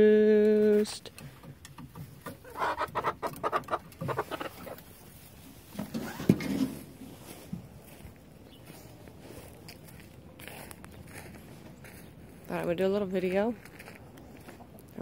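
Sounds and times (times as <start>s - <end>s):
chickens clucking: 1.1s - 9.3s, 14.0s - 15.0s.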